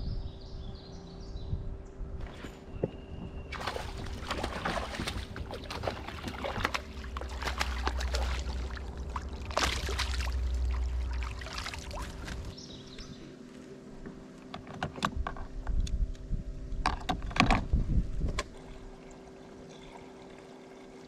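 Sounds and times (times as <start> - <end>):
low rumble: 0.0 - 13.3
water splashing and sloshing: 2.2 - 12.7, 16.8 - 21.0.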